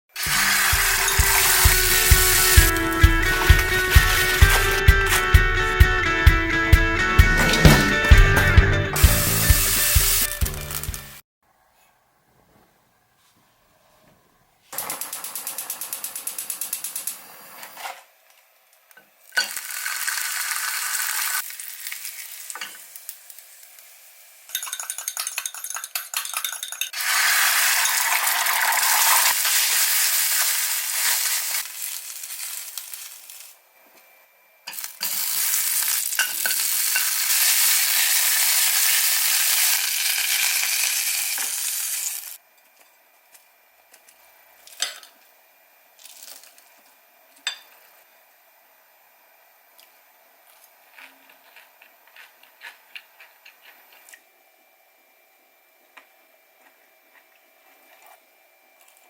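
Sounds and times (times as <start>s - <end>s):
food sizzling in a pan: 0.1s - 5.3s, 9.0s - 11.1s, 19.2s - 25.2s, 26.9s - 33.6s, 34.7s - 42.4s.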